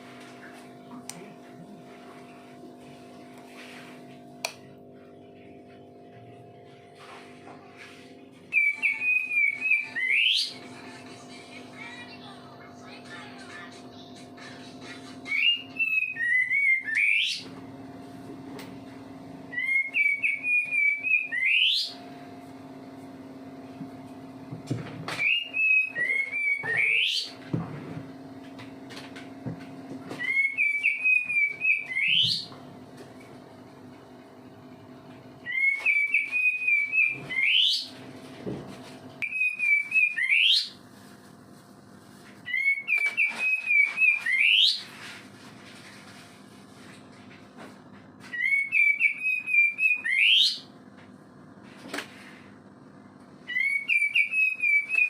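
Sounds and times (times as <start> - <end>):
steady low hum: 0.0 - 49.8
songbird singing whistled phrases: 8.5 - 10.6, 15.2 - 17.4, 19.5 - 22.0, 25.2 - 27.3, 30.2 - 32.5, 35.4 - 37.9, 39.2 - 40.8, 42.5 - 44.8, 48.3 - 50.7, 53.5 - 55.0.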